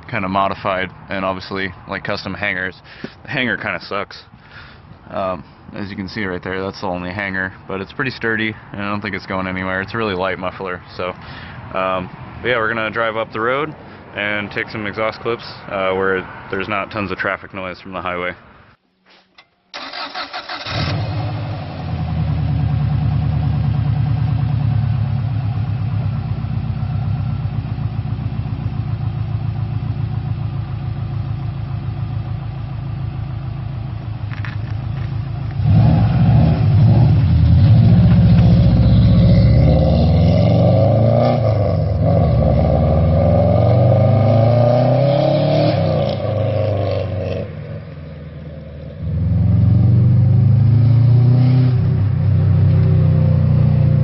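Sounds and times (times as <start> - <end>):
turbocharged car engine revving: 35.4 - 47.9, 49.0 - 54.0.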